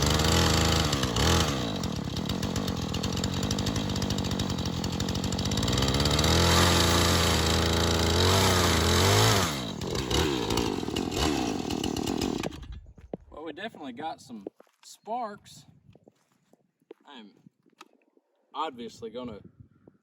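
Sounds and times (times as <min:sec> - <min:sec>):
two-stroke chainsaw revving: 0:00.0 - 0:12.8.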